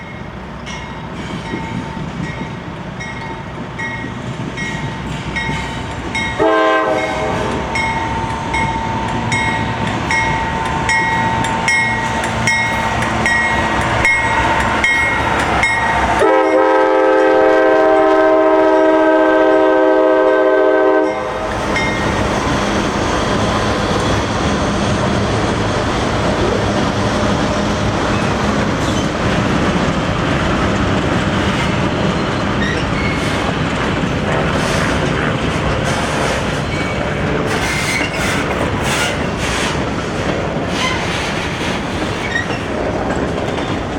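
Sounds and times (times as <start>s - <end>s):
train rumbling by: 0.0s - 43.9s
wheels clacking on rails: 0.0s - 43.9s
train air horn: 6.4s - 8.2s, 16.1s - 21.4s.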